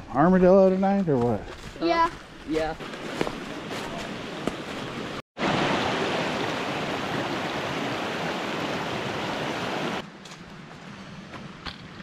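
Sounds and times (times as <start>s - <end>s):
creek water running: 2.5s - 10.0s.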